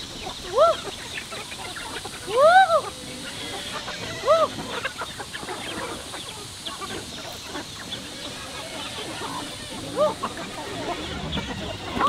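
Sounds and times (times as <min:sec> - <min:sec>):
chickens squawking: 0:00.0 - 0:12.0.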